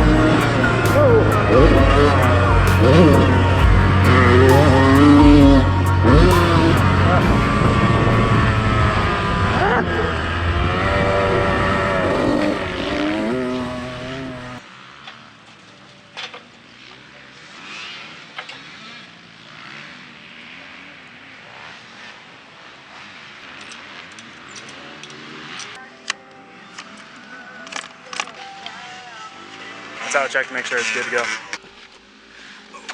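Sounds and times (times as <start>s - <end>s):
dirt bike engines revving: 0.0s - 25.8s.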